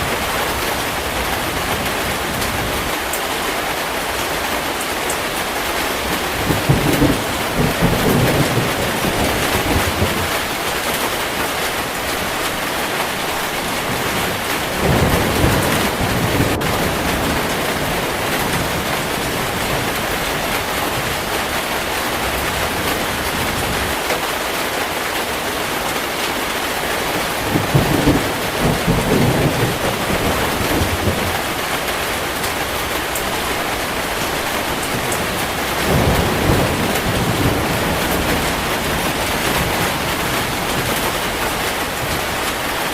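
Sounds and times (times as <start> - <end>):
heavy rain: 0.0 - 42.9
low thunder rumbles: 5.9 - 23.9, 27.3 - 42.6.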